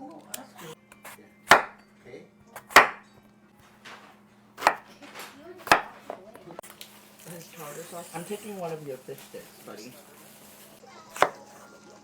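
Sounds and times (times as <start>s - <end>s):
knife chopping on cutting board: 0.6s - 1.8s, 2.6s - 3.0s, 4.6s - 5.0s, 5.6s - 6.3s, 11.1s - 11.6s.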